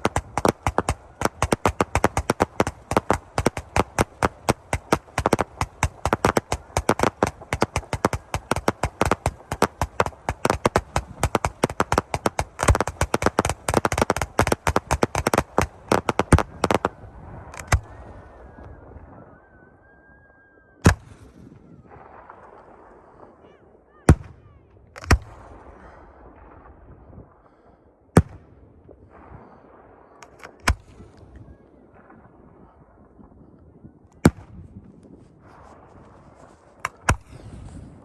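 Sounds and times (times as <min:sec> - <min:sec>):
fireworks crackling: 0:00.0 - 0:18.2, 0:35.1 - 0:38.0
fireworks bangs: 0:00.0 - 0:19.2.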